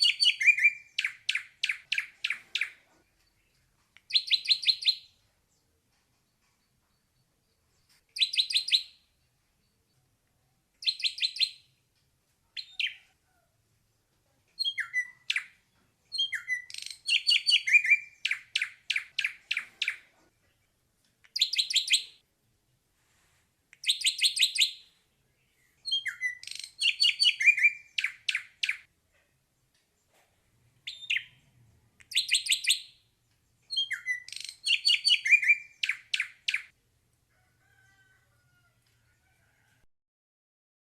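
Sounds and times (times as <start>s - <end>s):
bird singing: 0.0s - 5.2s, 14.6s - 20.0s, 23.9s - 28.8s, 32.1s - 36.7s.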